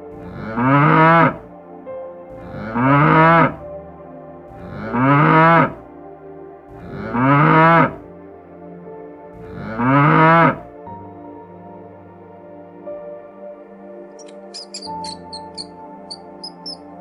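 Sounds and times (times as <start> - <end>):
soft ambient music: 0.0 - 17.0
cow mooing: 0.2 - 1.4, 2.4 - 3.6, 4.6 - 5.8, 6.8 - 8.0, 9.5 - 10.6.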